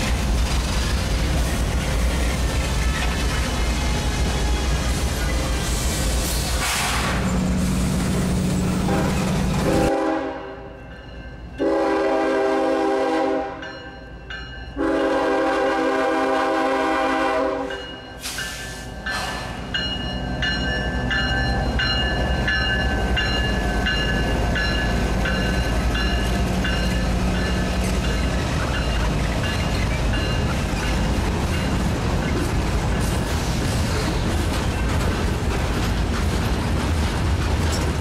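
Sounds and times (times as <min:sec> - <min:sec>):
low rumble of passing train: 0:00.0 - 0:38.0
train air horn blasts: 0:08.9 - 0:10.7, 0:11.6 - 0:13.6, 0:14.8 - 0:18.3
train bell dinging: 0:09.8 - 0:12.2, 0:13.5 - 0:15.2, 0:17.6 - 0:32.5.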